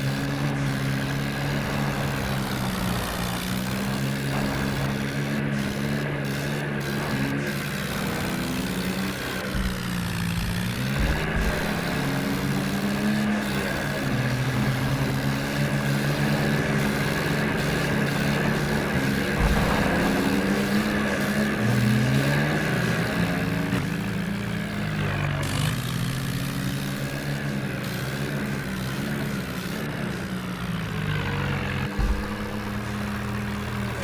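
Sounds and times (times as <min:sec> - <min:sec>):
tractor engine revving under load: 0:00.0 - 0:34.0.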